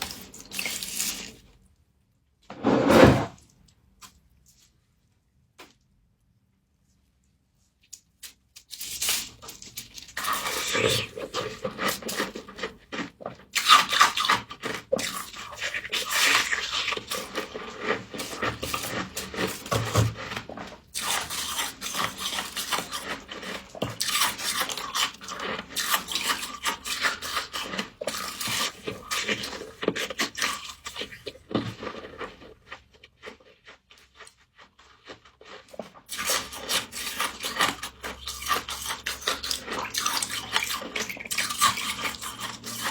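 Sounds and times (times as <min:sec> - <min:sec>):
frost crunching and scraping: 0:08.7 - 0:42.9.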